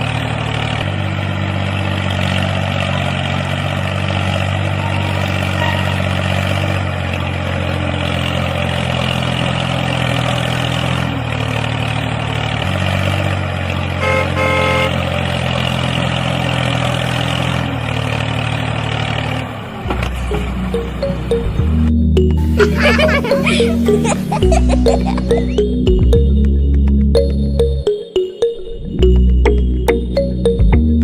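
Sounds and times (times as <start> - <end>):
horn beeping: 4.7 - 6.5, 14.0 - 15.0.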